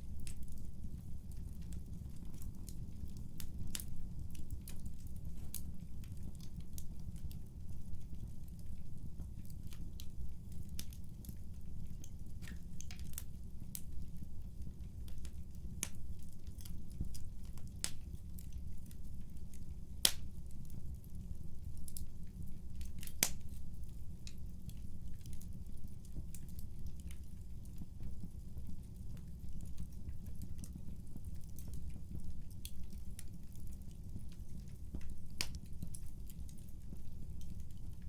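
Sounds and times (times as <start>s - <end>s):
fire crackling and popping: 0.0s - 38.0s.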